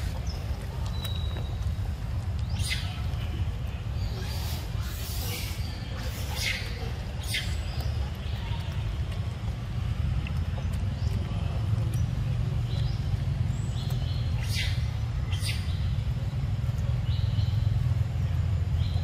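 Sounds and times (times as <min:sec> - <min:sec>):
birds chirping: 0:00.0 - 0:19.0
steady low rumble: 0:00.0 - 0:19.0
sharp high bird calls: 0:04.0 - 0:08.0, 0:13.9 - 0:16.0.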